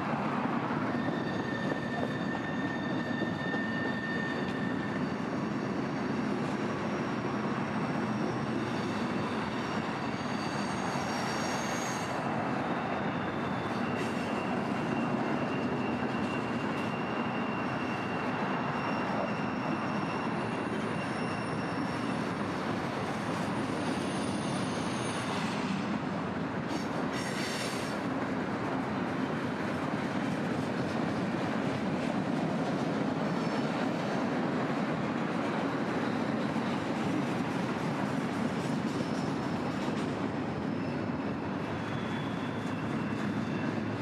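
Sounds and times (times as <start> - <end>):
steel wheels rumbling on rail: 0.0 - 44.0
high-pitched wheel squeals: 0.8 - 25.8, 38.7 - 44.0.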